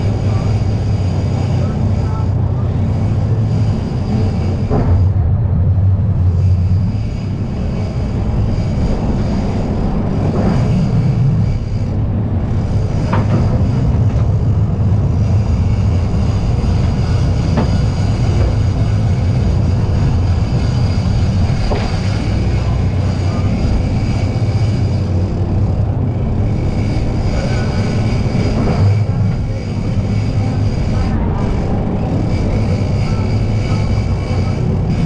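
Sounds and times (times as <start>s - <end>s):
boat engine droning: 0.0s - 35.0s.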